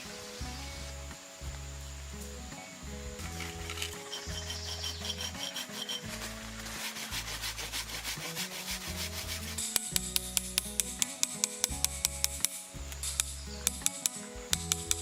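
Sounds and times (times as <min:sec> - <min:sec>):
background music with bass: 0:00.0 - 0:15.0
hand tool rasping wood: 0:03.4 - 0:12.4
sharp evenly spaced clicks: 0:09.6 - 0:15.0.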